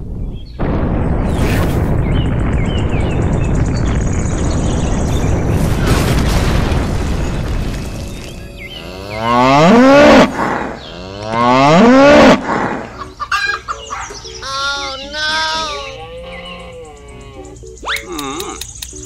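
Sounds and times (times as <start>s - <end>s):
deep rumbling explosion boom: 0.0s - 11.1s
cattle mooing: 8.8s - 12.9s.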